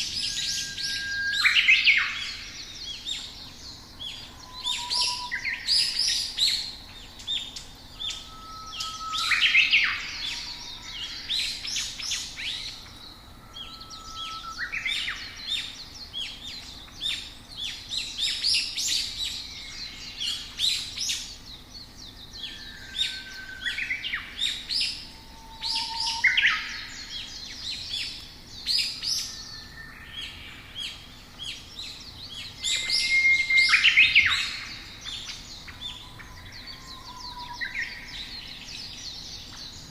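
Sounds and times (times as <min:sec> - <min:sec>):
faint outdoor ambience: 0:00.0 - 0:39.9
songbirds chirping and singing: 0:00.0 - 0:39.9.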